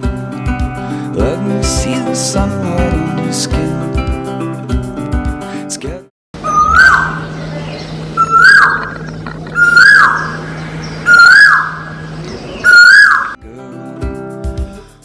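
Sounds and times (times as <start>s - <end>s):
parrot whistling: 6.4s - 7.3s, 8.2s - 10.4s, 11.0s - 12.0s, 12.6s - 13.4s.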